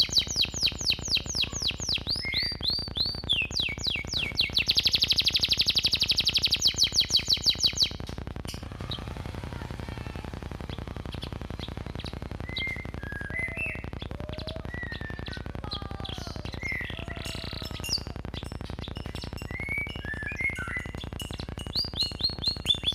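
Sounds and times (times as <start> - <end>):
canary singing: 0.0 - 22.9
steady low hum: 2.8 - 17.0.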